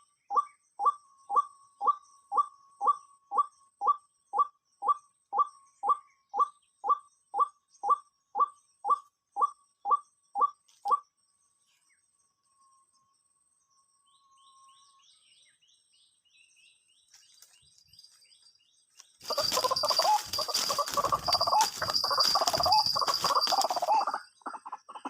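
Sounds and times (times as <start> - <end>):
bird chirping: 14.0 - 25.0
bird harsh wavering calling: 19.2 - 24.6.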